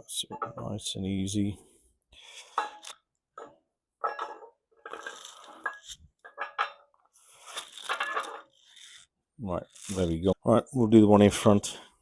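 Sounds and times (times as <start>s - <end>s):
metallic clinks and scrapes: 2.2s - 10.3s.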